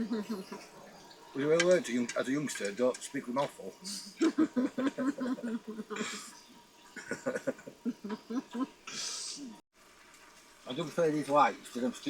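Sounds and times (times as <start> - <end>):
people chuckling and murmuring: 0.0 - 2.0, 3.8 - 9.5
breathy exhales: 8.9 - 9.5.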